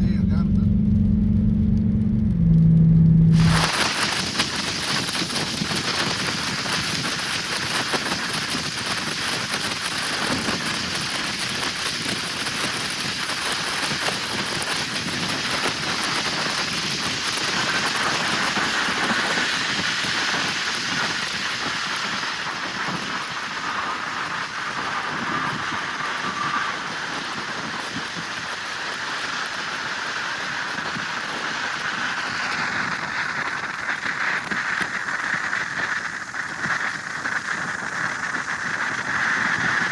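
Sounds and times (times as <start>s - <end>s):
vehicle noise: 0.0s - 4.2s
rain hissing: 3.3s - 39.9s.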